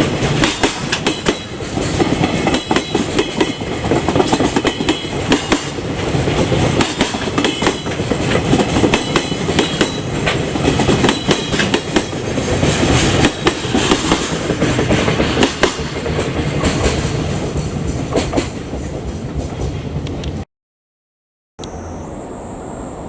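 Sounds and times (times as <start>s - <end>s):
wheel clacks over rail joints: 0.0s - 20.3s
train wagons rolling past: 0.0s - 20.4s
faint high wheel squeal: 21.6s - 23.0s.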